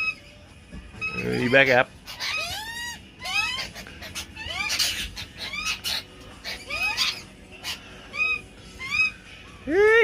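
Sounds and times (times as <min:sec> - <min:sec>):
birds chirping: 0:00.0 - 0:10.0
birds screeching harshly: 0:00.0 - 0:10.0.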